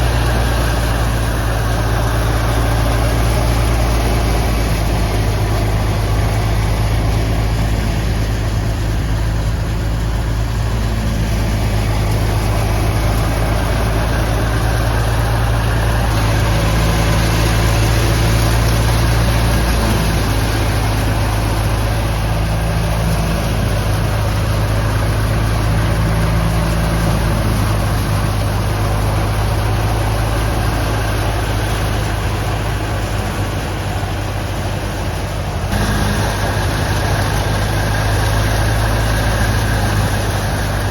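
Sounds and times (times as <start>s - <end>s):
thresher engine humming: 0.0s - 40.9s
thresher rushing noise: 0.0s - 40.9s.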